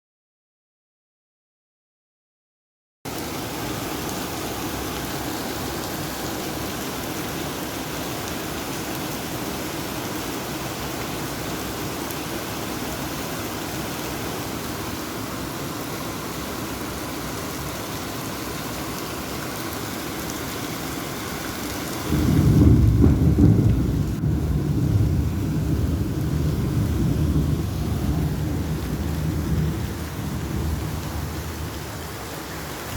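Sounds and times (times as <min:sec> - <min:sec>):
heavy rain: 0:03.1 - 0:32.9
thunder rumbling: 0:22.0 - 0:32.9.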